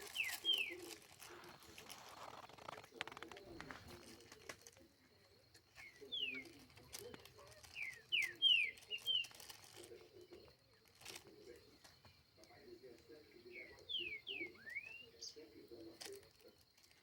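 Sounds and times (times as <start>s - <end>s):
down-slurred bird whistles: 5.8s - 6.6s, 7.7s - 9.3s, 13.5s - 15.4s.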